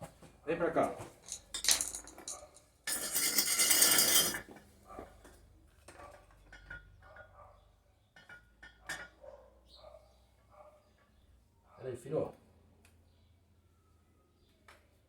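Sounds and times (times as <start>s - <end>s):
metal parts clinking: 1.2s - 4.5s.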